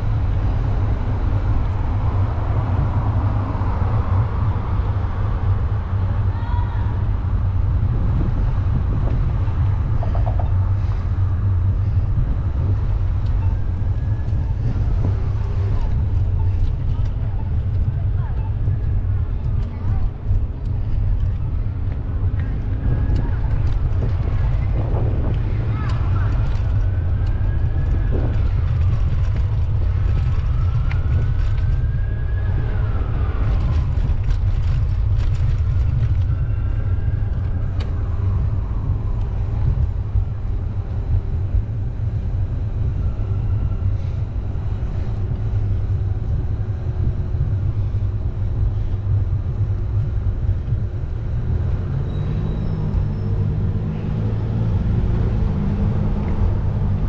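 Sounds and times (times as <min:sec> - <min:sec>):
rising and falling whines: 0:00.0 - 0:17.8, 0:35.9 - 0:57.0
steady engine hum: 0:00.0 - 0:57.0
street traffic rumble: 0:00.0 - 0:57.0.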